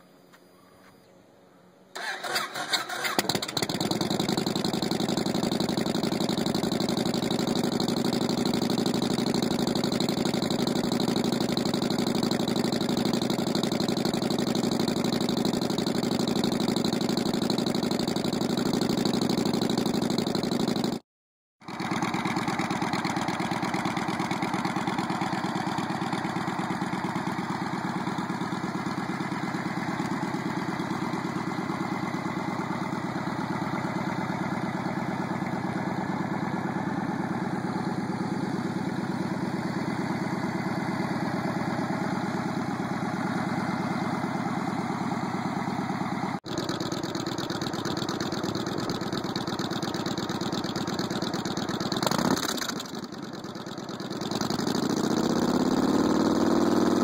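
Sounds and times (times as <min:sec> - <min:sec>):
motorcycle engine starting and idling: 0:01.9 - 0:21.0, 0:21.6 - 0:57.0.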